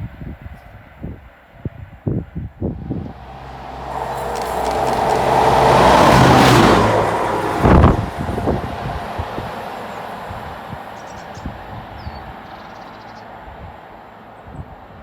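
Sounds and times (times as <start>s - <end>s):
vehicle passing by: 2.8s - 12.6s.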